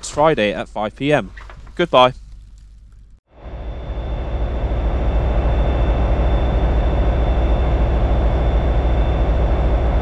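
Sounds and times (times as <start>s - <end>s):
high-pitched whine: 3.3s - 10.0s
train rumbling: 3.3s - 10.0s.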